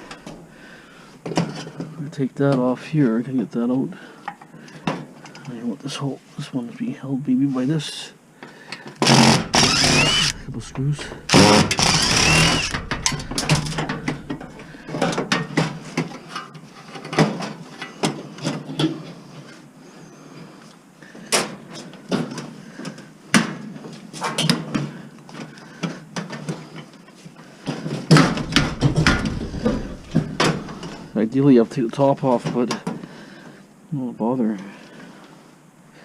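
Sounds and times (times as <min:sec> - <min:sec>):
hand tools knocking on metal parts: 0:28.1 - 0:31.2.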